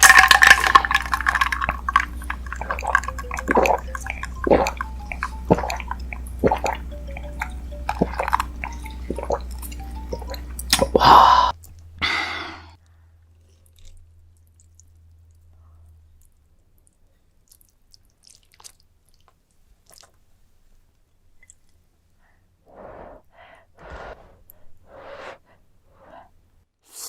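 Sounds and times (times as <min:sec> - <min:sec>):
wet chewing and mouth smacks: 0:13.4 - 0:20.2, 0:21.4 - 0:21.8
noodle slurps: 0:23.8 - 0:26.1.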